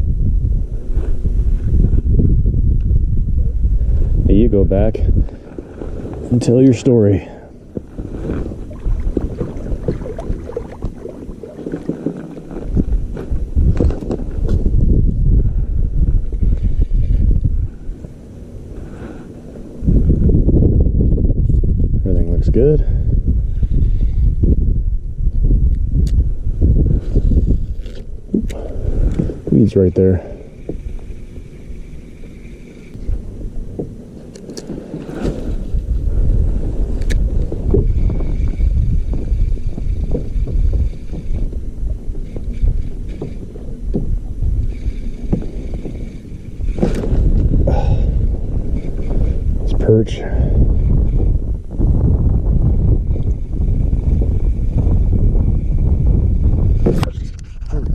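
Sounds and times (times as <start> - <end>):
wind rumbling on microphone: 0.0 - 57.9
knocks and clatter on kayak: 7.8 - 14.6, 37.5 - 48.0.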